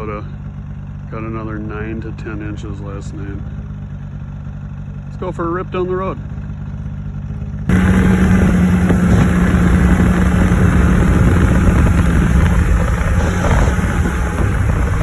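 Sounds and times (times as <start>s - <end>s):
snowmobile engine droning: 7.7s - 15.0s.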